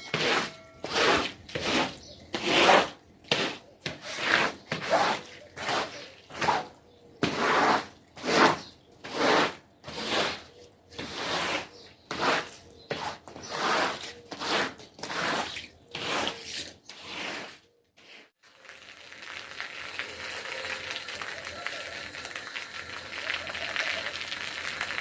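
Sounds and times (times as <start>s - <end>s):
scrubbing strokes on carpet: 0.1s - 18.3s.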